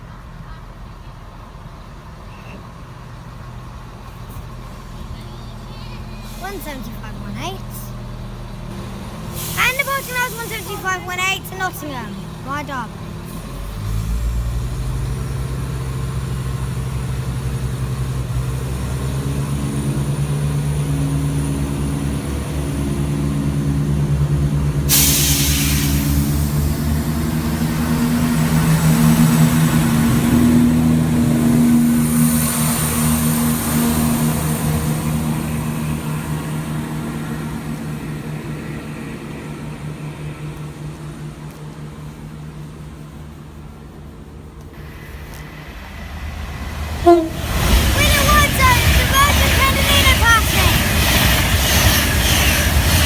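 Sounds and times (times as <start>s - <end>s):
diesel train engines under load: 0.0s - 53.0s
sudden hiss: 9.2s - 12.4s, 24.8s - 26.9s, 43.0s - 50.1s.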